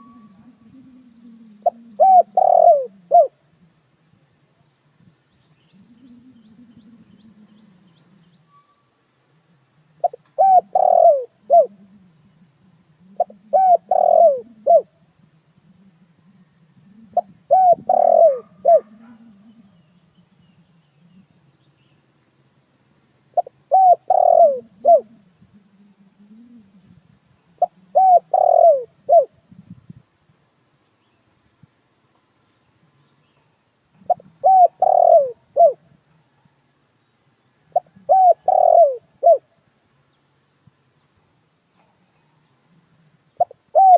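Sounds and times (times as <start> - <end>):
dove cooing: 0.0 - 3.9, 5.5 - 8.4, 9.8 - 21.5, 23.3 - 29.9, 33.9 - 36.1, 37.6 - 39.6, 41.8 - 43.9.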